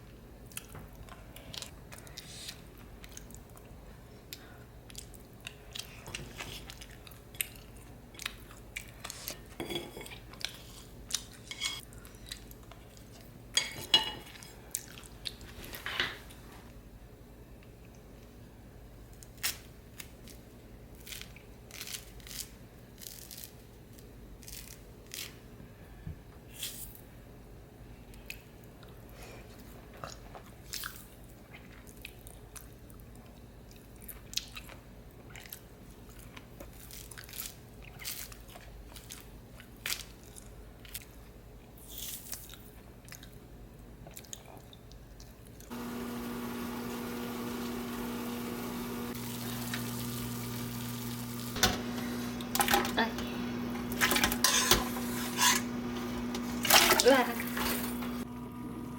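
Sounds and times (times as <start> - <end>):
steady sizzling: 45.7 - 58.9.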